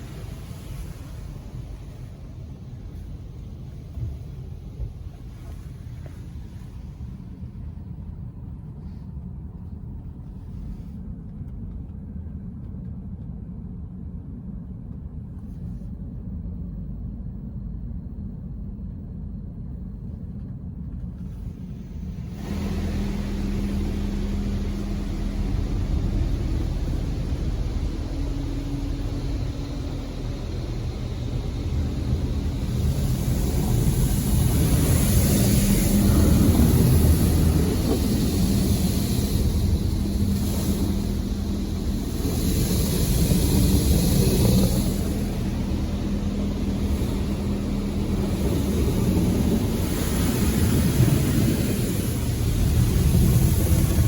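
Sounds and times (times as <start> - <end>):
water spray hissing on car: 0.0 - 7.2, 22.0 - 54.0
low steady rumble: 0.0 - 54.0
pump humming: 22.2 - 54.0.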